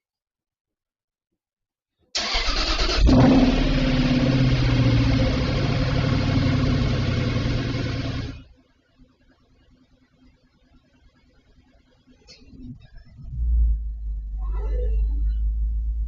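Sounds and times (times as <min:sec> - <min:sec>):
car engine starting and idling: 0:02.2 - 0:08.5.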